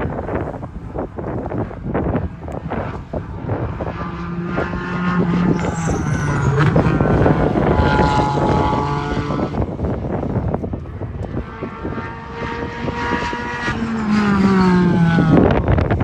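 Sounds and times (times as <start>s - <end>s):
wind buffeting microphone: 0.0s - 16.0s
race car passing by: 2.8s - 10.2s, 11.4s - 15.9s.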